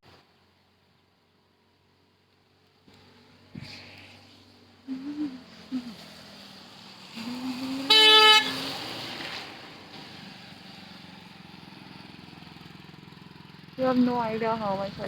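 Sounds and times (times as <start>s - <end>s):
car driving hum: 0.1s - 15.0s
vehicle horn honk: 7.8s - 8.7s.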